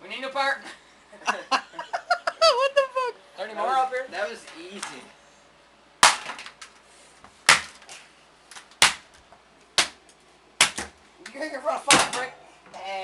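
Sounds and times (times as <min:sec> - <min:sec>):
heavy blows smashing a fan: 0:06.0 - 0:06.6.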